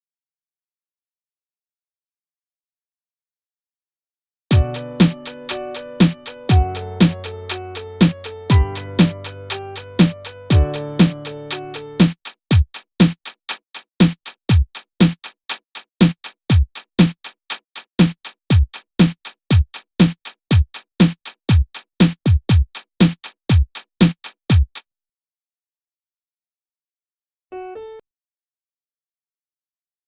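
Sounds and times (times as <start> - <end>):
other instruments: 4.5 - 12.4
drum machine beat: 4.5 - 24.8.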